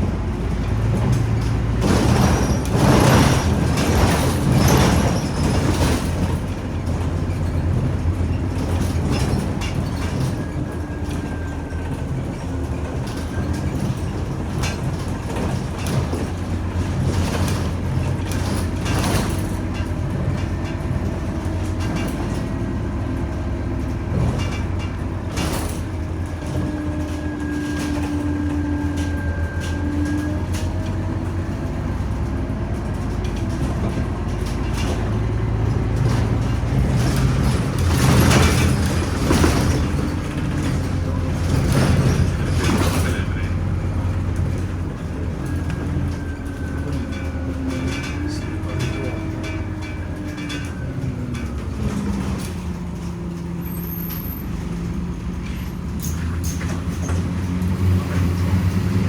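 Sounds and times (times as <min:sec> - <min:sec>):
bus engine and road drone: 0:00.0 - 0:59.0.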